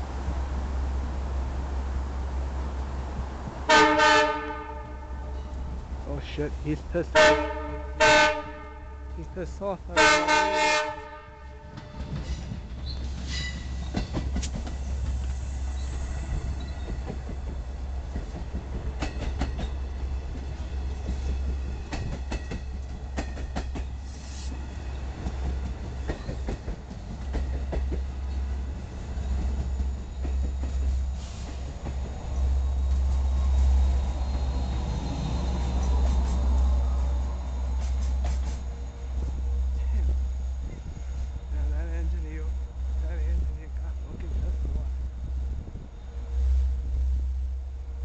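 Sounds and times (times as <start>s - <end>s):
train low rumble: 0.0s - 48.0s
train wheels clicking over rail joints: 11.7s - 36.7s, 37.7s - 39.5s.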